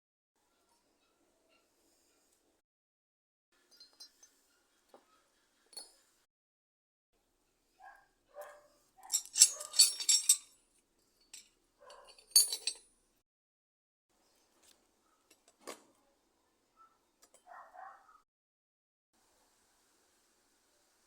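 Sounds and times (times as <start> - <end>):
metal parts clinking: 9.0 - 10.5, 11.2 - 12.8.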